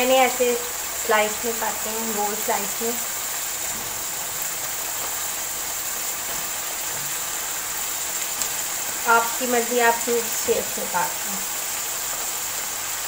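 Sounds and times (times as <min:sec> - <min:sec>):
food sizzling in a wok: 0:00.0 - 0:13.0.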